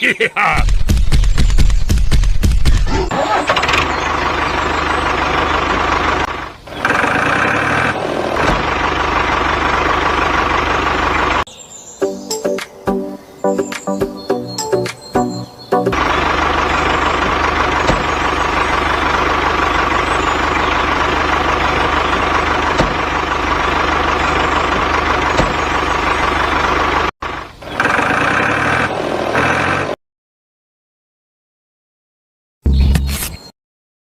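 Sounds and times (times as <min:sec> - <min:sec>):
tractor engine running: 0:00.6 - 0:11.5, 0:14.5 - 0:30.0.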